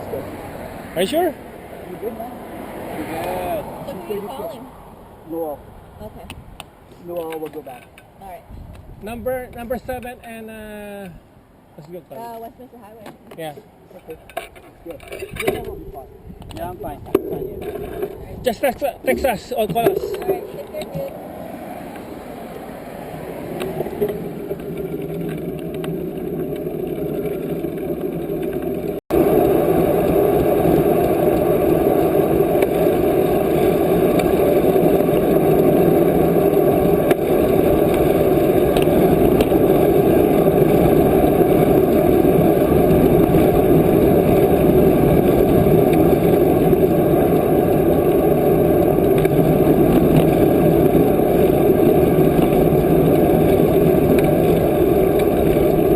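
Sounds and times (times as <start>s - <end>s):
wind rushing on microphone: 5.7s - 6.7s, 8.4s - 10.3s, 14.8s - 25.6s, 29.1s - 55.9s.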